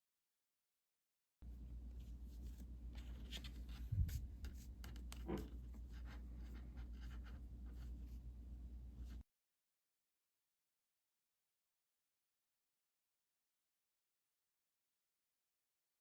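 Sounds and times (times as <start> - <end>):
steady low hum: 1.5 - 9.2.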